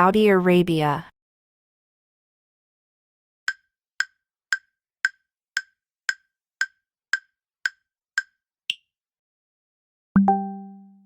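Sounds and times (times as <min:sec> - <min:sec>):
countdown timer ticking: 0:10.2 - 0:11.0.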